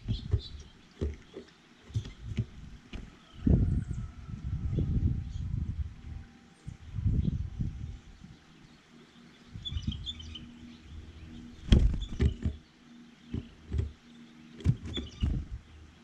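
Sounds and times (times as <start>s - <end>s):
close knocks and dull thumps: 0.0s - 3.2s, 11.6s - 12.6s, 13.3s - 15.6s
small birds chirping: 0.0s - 5.7s, 6.5s - 16.0s.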